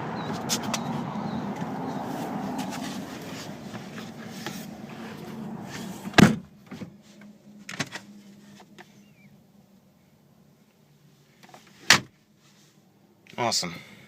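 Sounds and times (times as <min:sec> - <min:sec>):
car door shutting thump: 0:06.1 - 0:06.9, 0:11.8 - 0:12.1.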